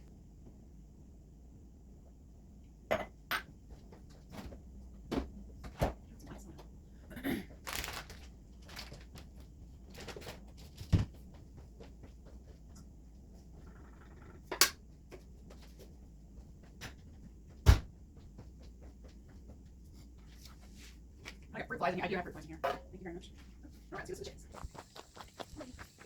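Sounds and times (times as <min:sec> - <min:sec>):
kitchen items clicking and rustling: 0:07.5 - 0:11.1.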